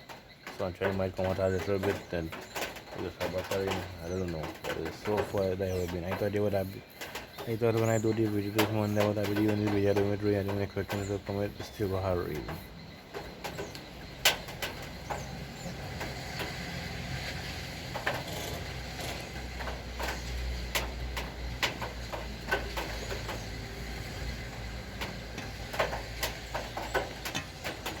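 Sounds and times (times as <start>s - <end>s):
drips and taps: 0.0s - 28.0s
rain falling: 0.0s - 28.0s.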